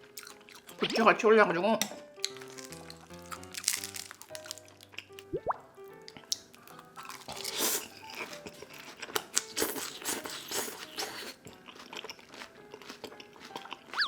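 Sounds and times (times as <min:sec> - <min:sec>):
crunching and chewing food: 0:00.0 - 0:00.8, 0:02.2 - 0:05.3, 0:05.9 - 0:14.0.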